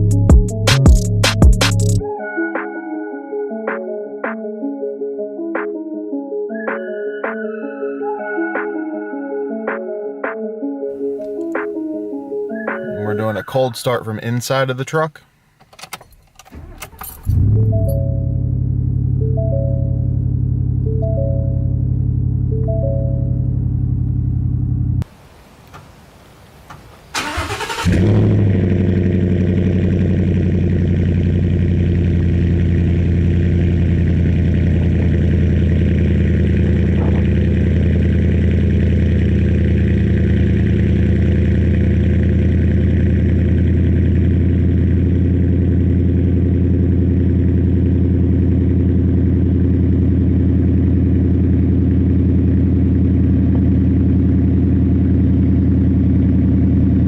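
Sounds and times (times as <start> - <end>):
engine cranking and idling: 15.6 - 25.0, 27.2 - 56.8.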